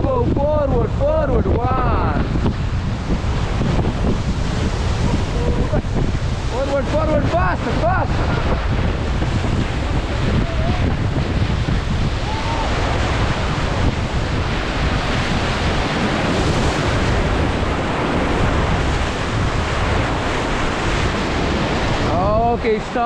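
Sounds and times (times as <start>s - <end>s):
whitewater rushing and splashing: 0.0s - 23.0s
wind on microphone: 0.0s - 23.0s
short voice cries: 10.4s - 11.0s.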